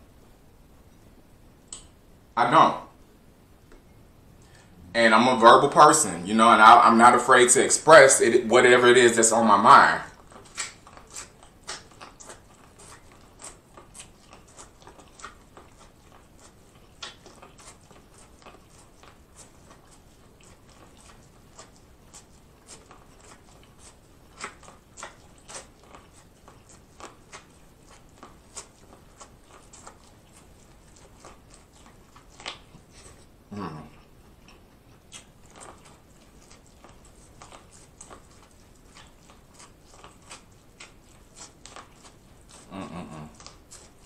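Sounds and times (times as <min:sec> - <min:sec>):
crunching corn on the cob: 0:08.9 - 0:33.2, 0:34.4 - 0:44.0.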